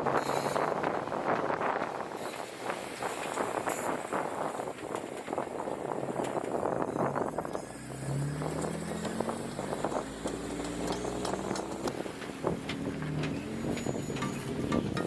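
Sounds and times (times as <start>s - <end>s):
jeep engine revving: 7.0s - 14.7s.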